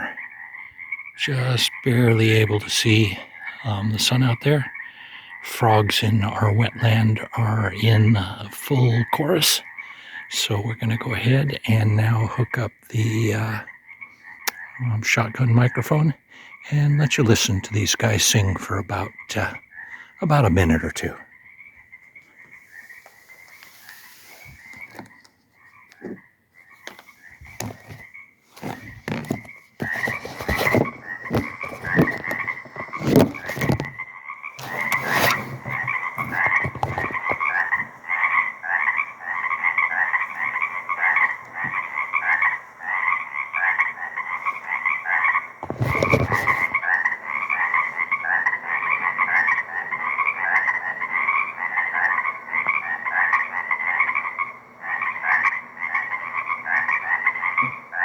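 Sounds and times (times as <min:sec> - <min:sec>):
frog chorus: 0:00.0 - 0:58.0.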